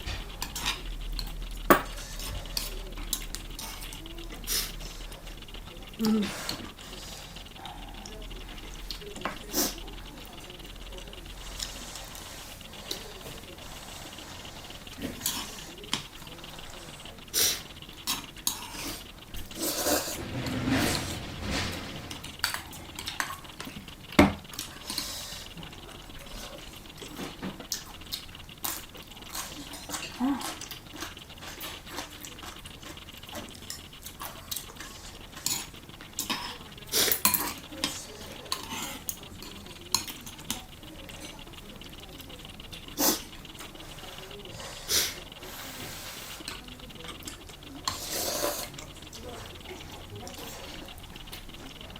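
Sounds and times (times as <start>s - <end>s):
utensils clinking on dishes: 14.9s - 41.4s.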